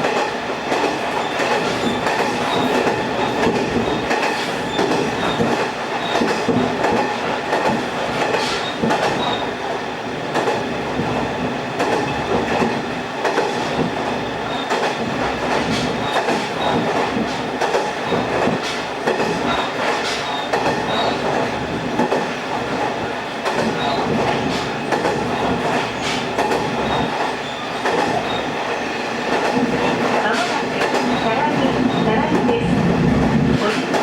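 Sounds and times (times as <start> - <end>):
diesel railcar running: 0.0 - 34.0.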